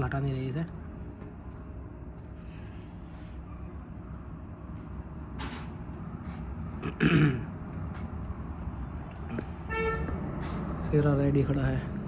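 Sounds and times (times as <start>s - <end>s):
person coughing: 6.8s - 7.5s.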